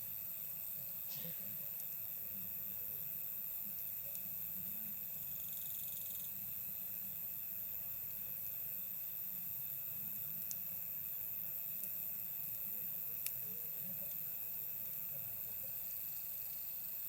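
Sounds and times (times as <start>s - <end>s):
campfire hissing and crackling: 0.0s - 17.0s
night insects chirring: 4.8s - 7.1s.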